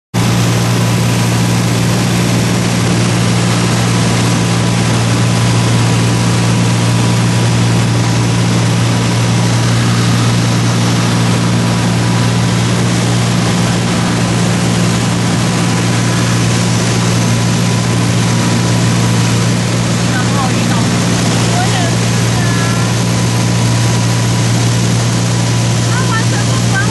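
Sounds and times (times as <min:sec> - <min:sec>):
propeller plane engine drone: 0:00.1 - 0:26.9.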